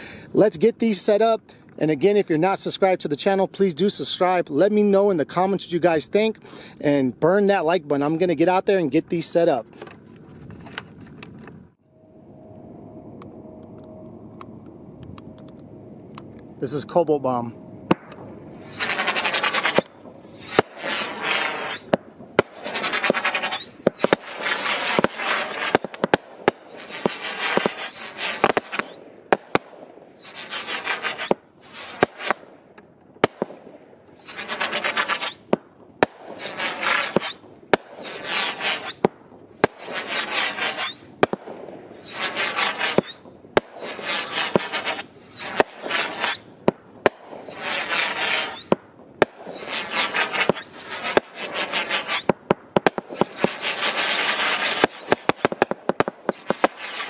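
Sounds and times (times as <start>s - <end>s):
faint rising whistles: 11.8s - 20.6s, 47.4s - 48.8s
fireworks shots cracking and bursting: 15.2s - 57.0s.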